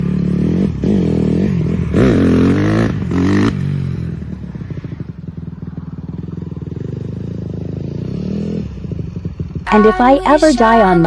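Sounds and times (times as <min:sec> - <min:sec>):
dirt bike engine revving: 0:00.0 - 0:04.0.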